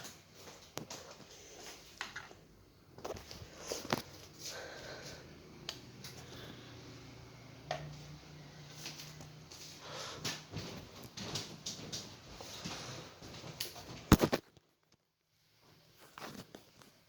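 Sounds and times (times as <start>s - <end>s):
ceiling fan motor humming: 2.8s - 13.4s.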